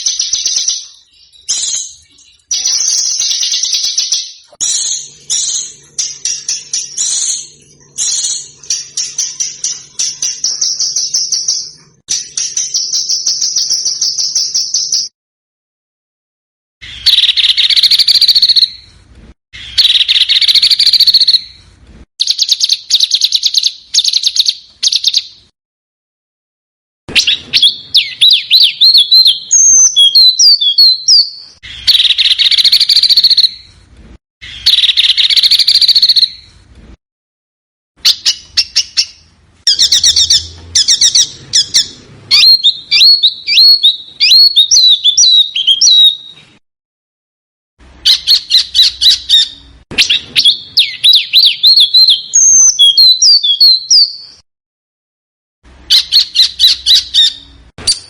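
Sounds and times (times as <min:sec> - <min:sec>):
small songbird singing: 0:00.0 - 0:15.1, 0:16.8 - 0:19.0, 0:19.6 - 0:25.5, 0:27.1 - 0:33.7, 0:34.4 - 0:36.5, 0:38.0 - 0:46.5, 0:48.0 - 0:54.4, 0:55.9 - 0:58.0
harsh rasping bird calls: 0:38.0 - 0:46.3.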